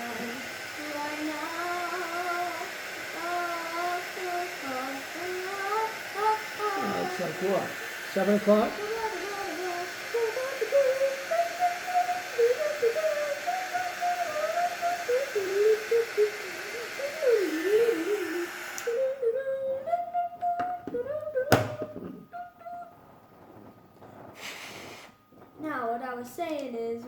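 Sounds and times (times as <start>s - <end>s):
hot-air blower hissing: 0.0s - 19.8s, 20.6s - 22.3s, 23.4s - 25.3s.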